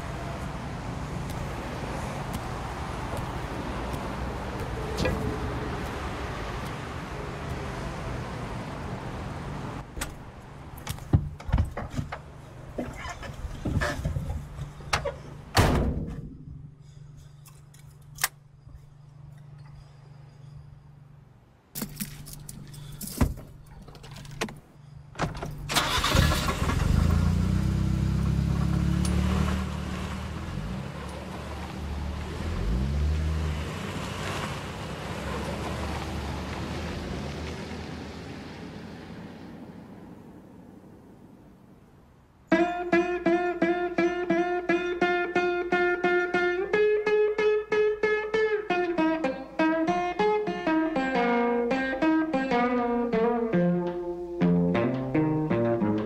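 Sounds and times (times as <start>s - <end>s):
car engine starting and revving: 25.7s - 39.7s.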